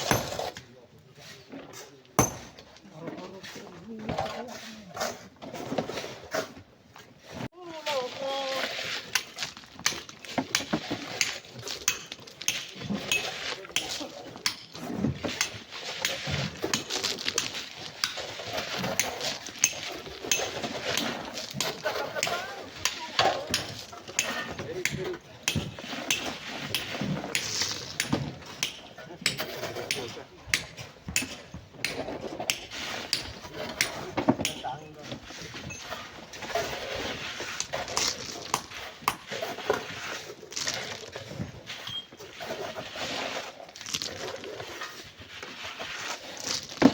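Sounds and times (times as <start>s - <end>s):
hand tools scraping sand and stones: 0.0s - 46.9s
metal tools knocking on stone: 2.2s - 2.6s.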